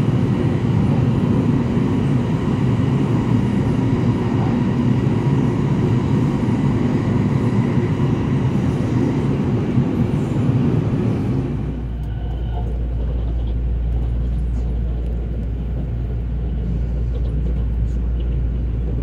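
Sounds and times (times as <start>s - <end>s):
low steady train hum: 0.0s - 19.0s
train wheels rumbling on rail: 0.0s - 19.0s.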